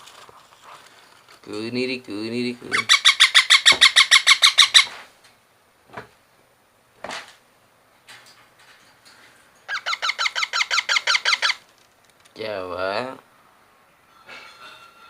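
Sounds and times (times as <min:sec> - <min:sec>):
baby parrot begging calls: 0:02.7 - 0:05.0, 0:09.7 - 0:11.6.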